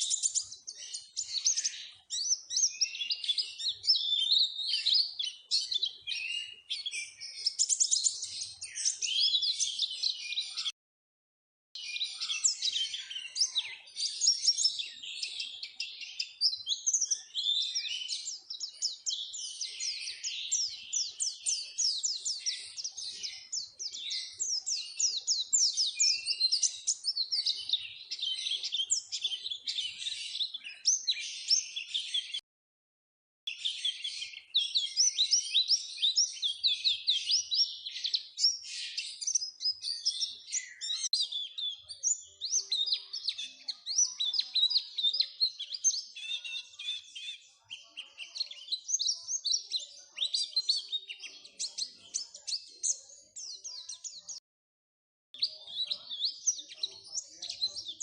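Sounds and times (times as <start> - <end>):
high-pitched bird twittering: 0.0 - 10.7, 33.5 - 54.4.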